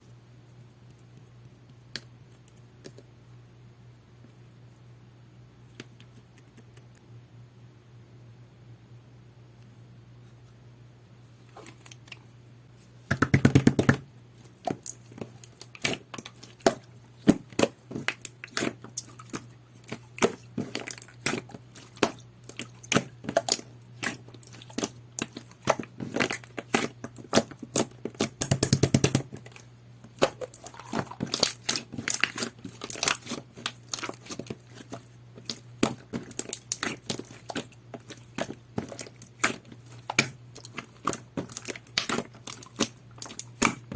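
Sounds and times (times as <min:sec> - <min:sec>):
faint low hum: 0:00.0 - 0:43.9
slime squished by hand: 0:14.5 - 0:43.9.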